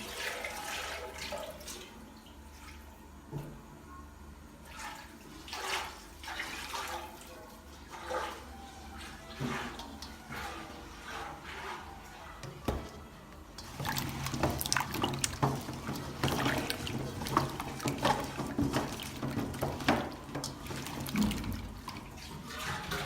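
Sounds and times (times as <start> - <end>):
water running and splashing: 0.0 - 2.9, 4.7 - 12.0, 13.6 - 23.0
small knocks and clatters: 13.6 - 23.0.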